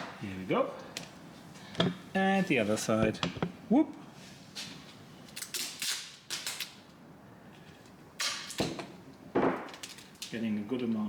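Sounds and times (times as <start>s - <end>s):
tape ripping off roll: 5.4s - 6.8s, 8.2s - 8.8s.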